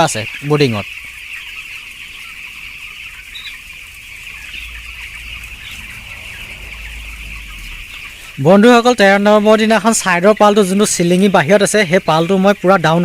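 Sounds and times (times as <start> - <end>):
chicks peeping: 0.0 - 13.0
low rumble: 3.8 - 8.5.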